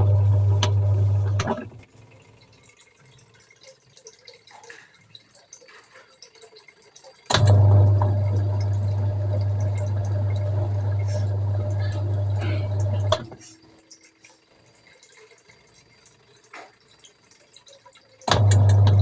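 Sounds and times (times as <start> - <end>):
washing machine motor humming: 0.0 - 2.8, 6.4 - 19.0
water dripping: 0.0 - 19.0
water moving in tub: 0.0 - 19.0.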